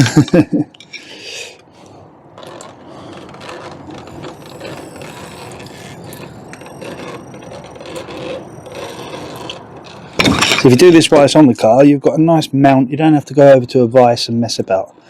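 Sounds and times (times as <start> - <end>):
rapid mechanical clicking and rattling: 1.7 - 11.0.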